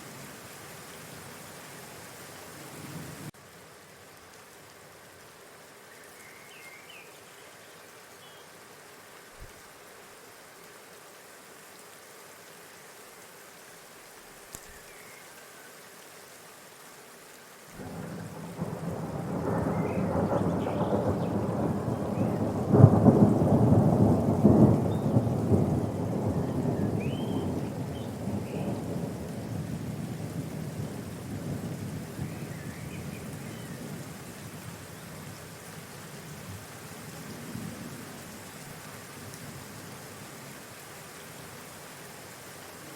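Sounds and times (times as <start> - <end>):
faint bird chirps: 5.9 - 8.6, 14.6 - 15.8, 26.3 - 28.8, 32.2 - 33.9
thunder rolling: 17.8 - 29.1.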